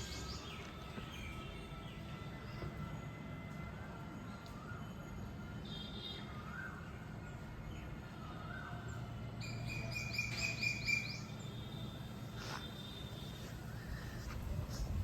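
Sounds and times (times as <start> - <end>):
songbirds whistling and chirping: 0.0 - 2.8, 6.1 - 15.0.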